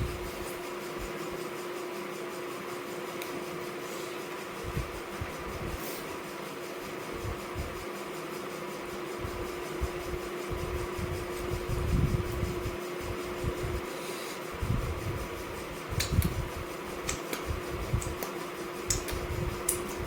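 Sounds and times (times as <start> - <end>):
fan-like hum: 0.0 - 20.0
soft low thumps: 9.2 - 13.8, 14.6 - 18.2.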